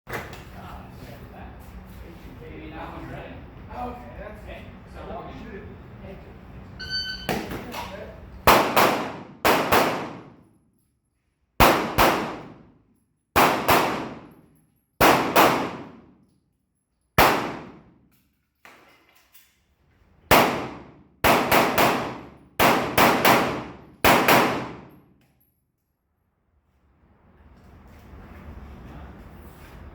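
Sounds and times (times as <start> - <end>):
pistol shots: 8.5 - 10.4, 11.6 - 12.6, 13.4 - 14.4, 15.0 - 16.1, 17.2 - 17.9, 20.3 - 25.0.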